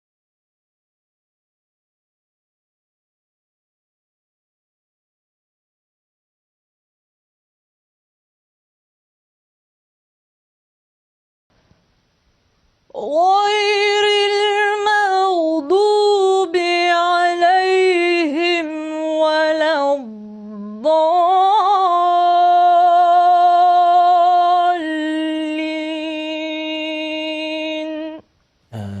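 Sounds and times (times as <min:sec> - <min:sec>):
woman singing unaccompanied: 0:12.9 - 0:28.3.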